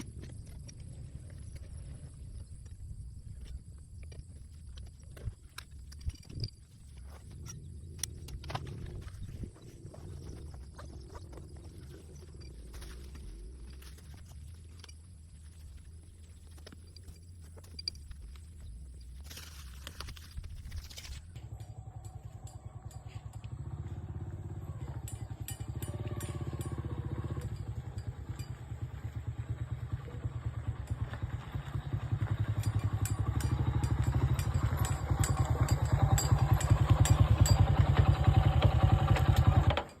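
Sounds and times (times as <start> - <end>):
light rattles and clicks: 0.0 - 40.0
small petrol engine running: 20.9 - 40.0.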